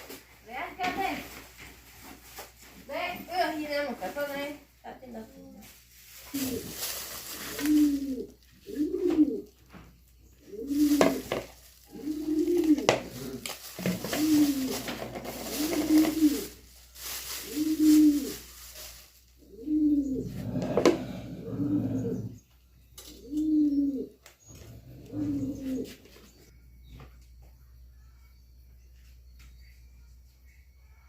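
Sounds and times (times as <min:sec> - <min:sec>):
pigeon cooing: 0:05.3 - 0:26.5.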